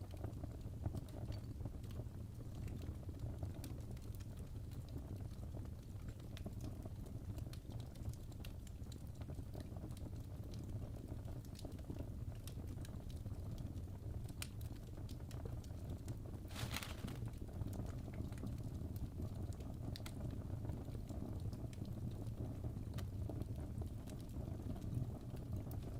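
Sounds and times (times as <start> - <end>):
fireplace crackling: 13.8 - 18.7.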